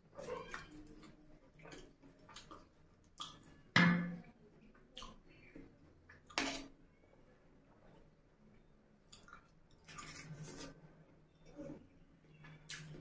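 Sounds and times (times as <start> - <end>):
wet chewing and smacking: 0.2 - 3.6, 8.5 - 10.8.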